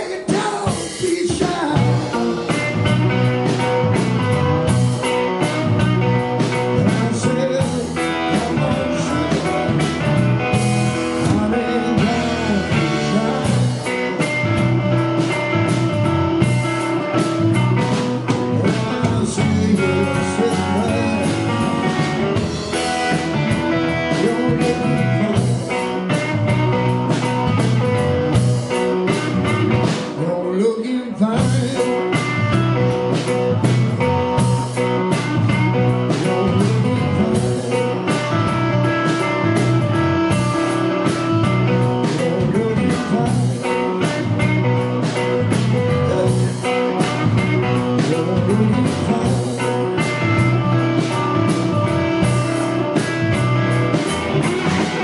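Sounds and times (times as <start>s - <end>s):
rock band playing blues-rock: 0.0s - 55.0s.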